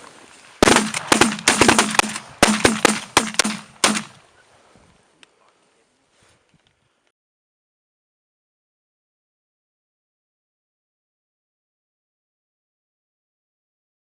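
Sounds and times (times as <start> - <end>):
shotgun blasts: 0.6 - 4.2.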